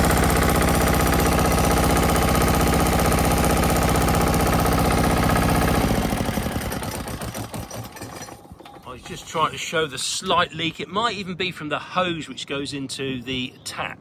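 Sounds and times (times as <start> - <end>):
diesel engine running: 0.0 - 10.6.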